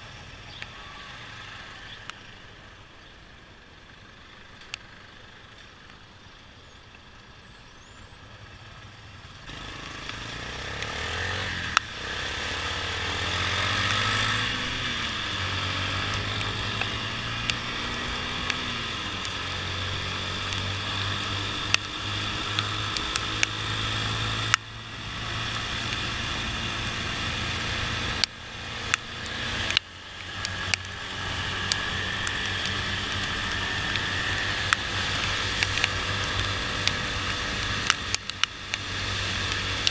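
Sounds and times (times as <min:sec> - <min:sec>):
motorcycle engine: 0:07.8 - 0:39.9
wind and wet road hiss: 0:09.5 - 0:39.9.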